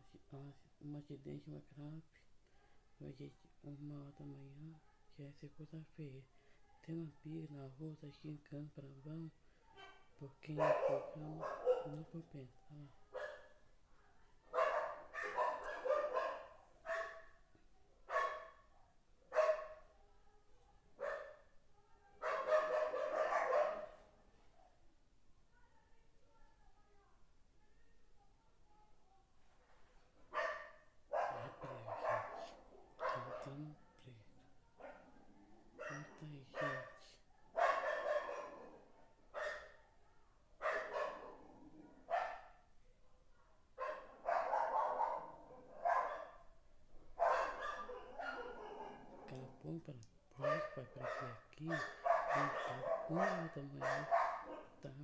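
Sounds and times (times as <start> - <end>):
dog barking: 9.6 - 12.2, 13.0 - 20.0, 20.7 - 24.9, 30.2 - 33.8, 34.4 - 49.5, 50.4 - 55.0.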